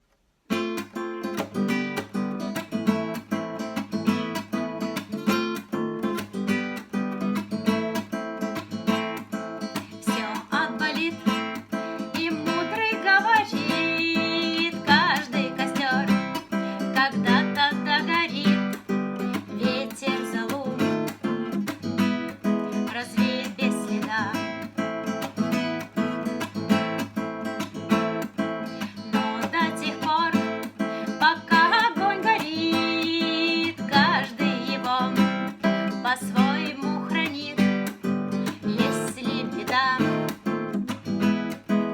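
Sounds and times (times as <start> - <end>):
acoustic guitar strumming: 0.5 - 41.9
person singing: 10.0 - 18.8, 19.4 - 21.2, 22.8 - 24.6, 28.8 - 40.4.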